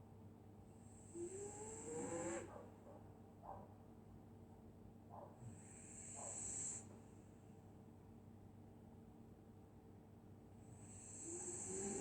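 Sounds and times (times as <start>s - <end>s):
dog snoring breath hiss: 0.8s - 2.7s, 5.4s - 7.4s, 10.6s - 12.0s.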